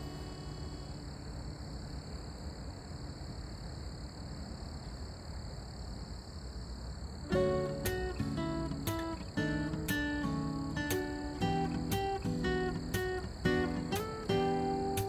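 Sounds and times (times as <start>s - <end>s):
acoustic guitar music: 0.0s - 1.7s, 7.2s - 15.0s
faint high steady tones: 0.0s - 2.8s, 7.3s - 15.0s
background music: 7.3s - 15.0s.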